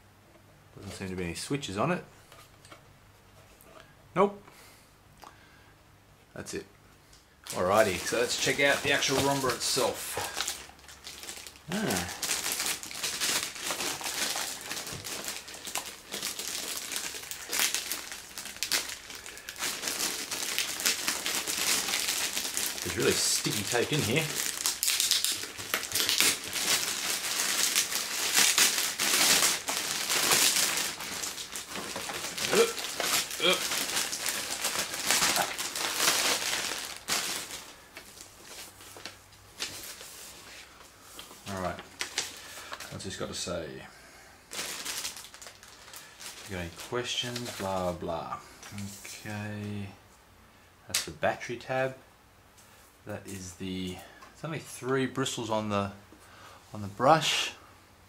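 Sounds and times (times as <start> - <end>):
packaging crinkling and rustling: 7.4 - 43.5, 44.5 - 49.3.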